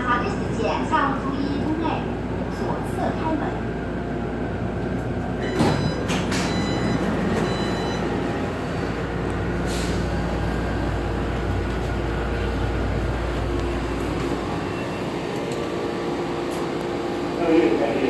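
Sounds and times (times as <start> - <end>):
low train hum: 0.0 - 18.0.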